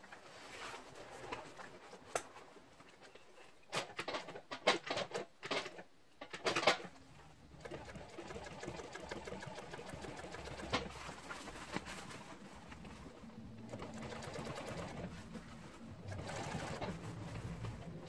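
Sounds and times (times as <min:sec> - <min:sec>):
sharp clicks and clacks: 0:03.8 - 0:07.0, 0:07.6 - 0:11.8
sewing machine running: 0:07.5 - 0:11.1, 0:13.5 - 0:18.0.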